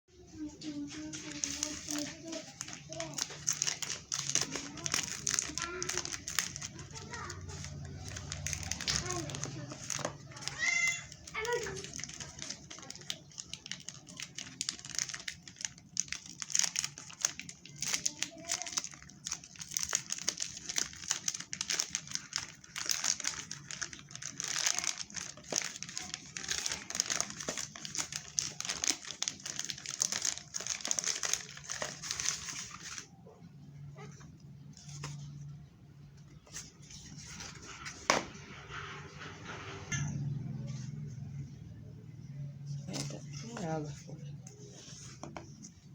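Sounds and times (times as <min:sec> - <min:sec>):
plastic packaging crinkling: 0:00.7 - 0:33.2.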